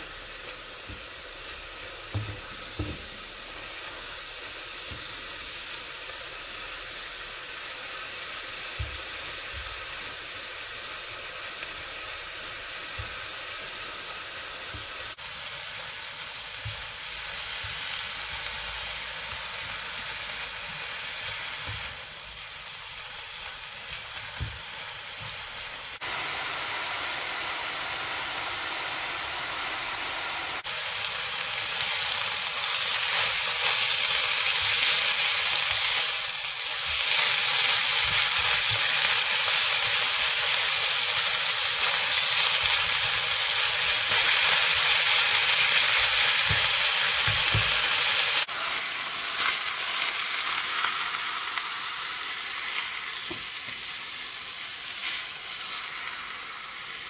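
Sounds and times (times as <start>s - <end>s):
eggplant sizzling in oil: 0.0s - 57.0s.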